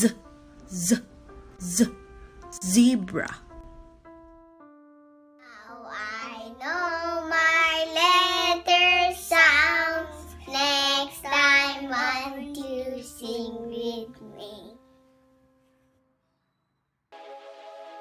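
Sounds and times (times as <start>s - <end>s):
light music backing: 0.0s - 16.1s, 17.2s - 18.0s
child singing: 5.4s - 14.8s.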